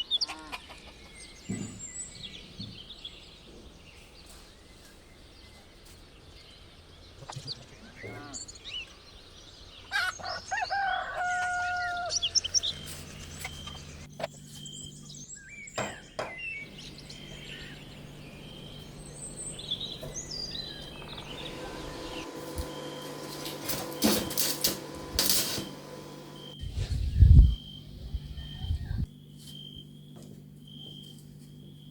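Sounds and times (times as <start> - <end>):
small birds chirping: 0.0 - 11.0, 11.7 - 23.4
rooster crowing: 9.9 - 12.8.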